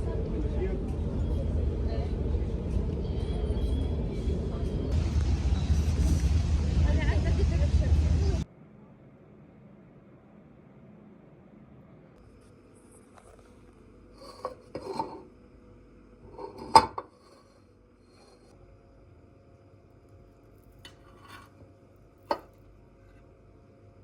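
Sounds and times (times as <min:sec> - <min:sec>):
dishes and utensils clinking: 0:14.2 - 0:15.3, 0:16.3 - 0:18.5.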